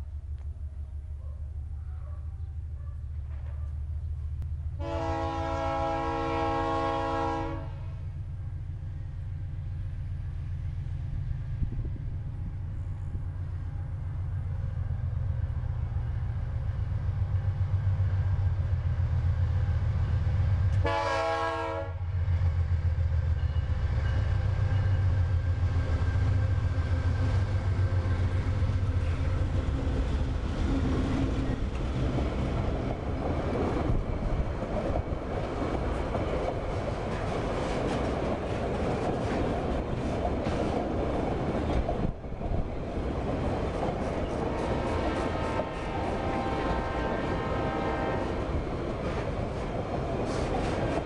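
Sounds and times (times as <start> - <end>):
diesel locomotive engine rumble: 0.0 - 51.0
locomotive horn blast: 4.8 - 8.0, 20.8 - 22.1, 44.5 - 48.4.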